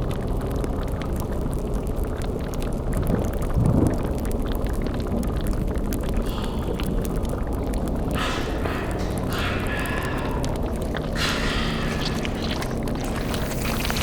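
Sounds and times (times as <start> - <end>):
low rumbling drone: 6.2 - 14.0.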